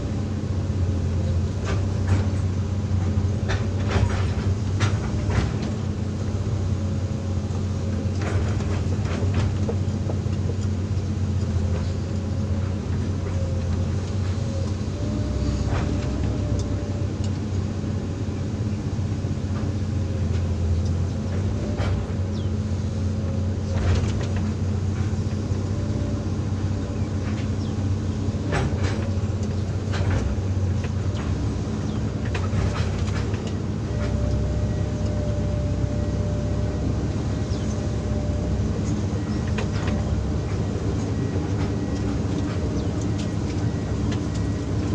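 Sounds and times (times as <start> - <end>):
excavator diesel engine running: 0.0 - 44.9
sharp clanks and knocks: 1.6 - 5.8, 8.0 - 10.8, 28.4 - 34.7.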